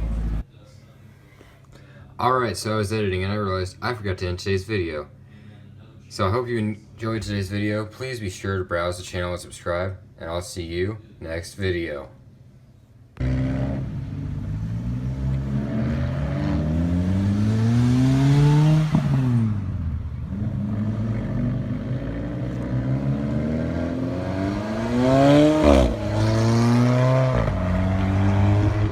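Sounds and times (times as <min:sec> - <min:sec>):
car engine exhaust revving: 0:13.2 - 0:28.9.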